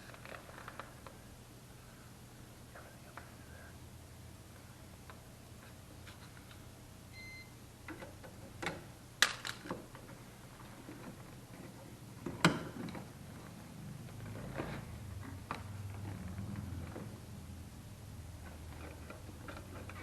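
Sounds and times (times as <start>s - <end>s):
low steady hum: 0.0s - 20.0s
high beep: 7.2s - 7.5s.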